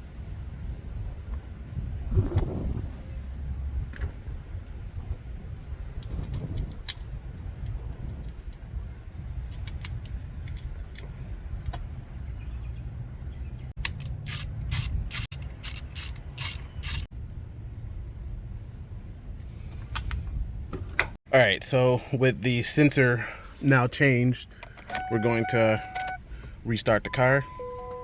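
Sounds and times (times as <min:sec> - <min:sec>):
ratchet wrench clicking: 0:13.8 - 0:17.1.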